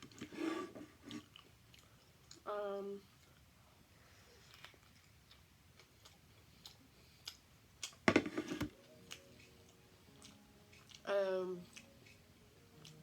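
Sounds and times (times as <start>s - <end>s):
chewing clicks: 4.4s - 8.0s, 8.8s - 12.2s, 12.8s - 13.0s
food crunching: 4.4s - 13.0s.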